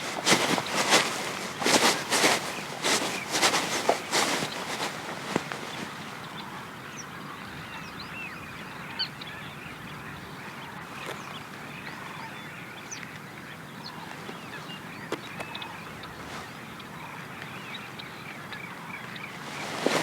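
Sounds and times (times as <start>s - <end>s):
birds chirping: 0.0s - 8.2s, 12.8s - 20.0s.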